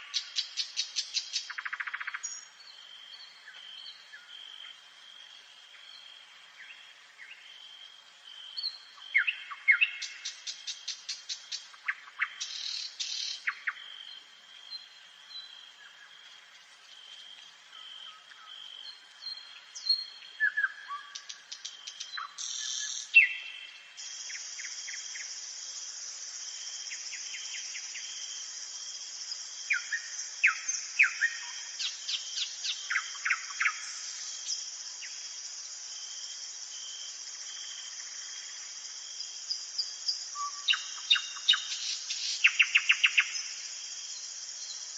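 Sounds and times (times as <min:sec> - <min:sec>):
insect high-pitched trill: 0:00.0 - 0:04.8, 0:16.6 - 0:44.9
nightingale singing: 0:00.0 - 0:04.8, 0:08.4 - 0:16.1, 0:17.7 - 0:35.9, 0:39.2 - 0:44.9.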